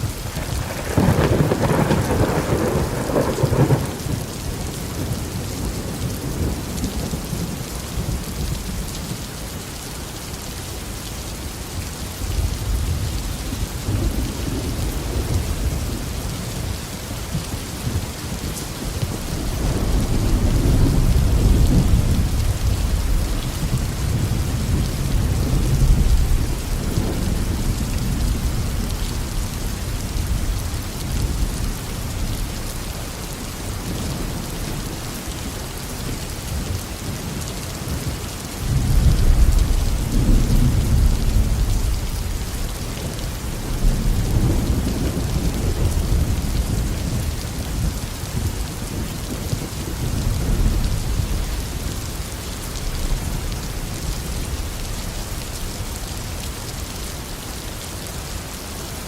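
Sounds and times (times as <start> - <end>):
thunder rumbling: 0.0 - 8.9, 12.3 - 32.8, 38.6 - 56.0
heavy rain falling: 0.0 - 59.0.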